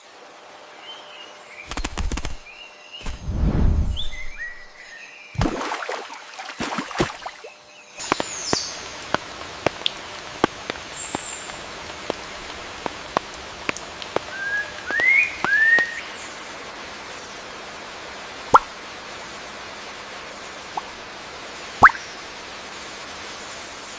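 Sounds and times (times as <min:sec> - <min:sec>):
steady background hiss: 0:00.0 - 0:23.9
bird chirps: 0:03.9 - 0:05.2, 0:14.3 - 0:16.2
bird whistle: 0:14.3 - 0:16.1
water drops plopping: 0:18.5 - 0:18.7, 0:21.8 - 0:22.1.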